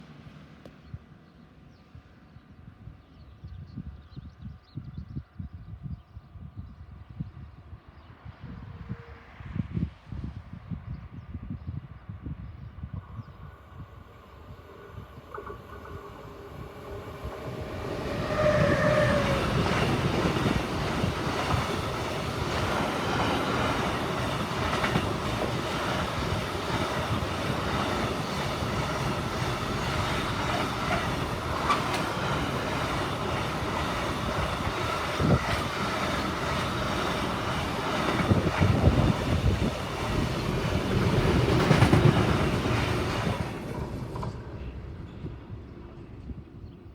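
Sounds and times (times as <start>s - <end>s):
electric locomotive passing: 12.8s - 46.9s
wheels clacking over rail joints: 17.5s - 45.2s.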